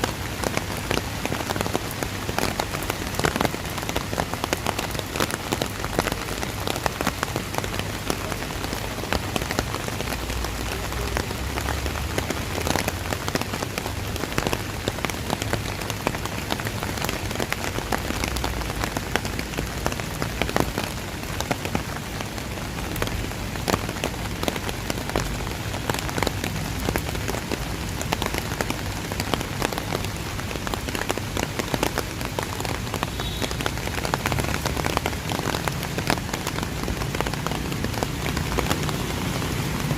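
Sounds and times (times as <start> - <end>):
sharp raindrop hits: 0.0 - 39.9
steady rain falling: 0.0 - 39.9.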